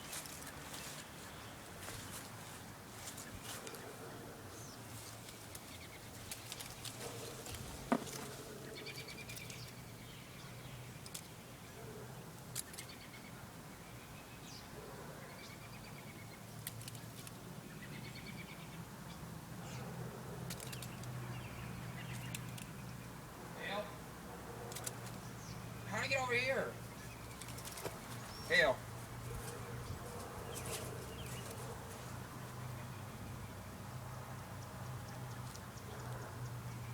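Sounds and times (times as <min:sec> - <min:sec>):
sharp clicks: 0:24.7 - 0:25.2.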